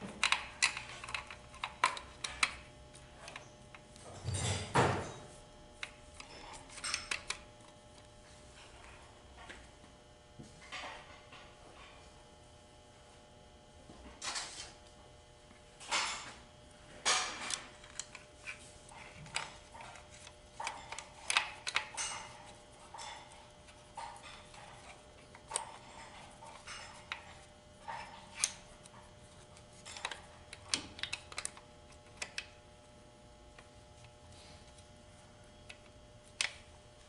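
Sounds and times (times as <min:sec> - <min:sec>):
metal parts clicking and clinking: 0:00.2 - 0:03.5, 0:17.0 - 0:28.6, 0:29.8 - 0:32.5.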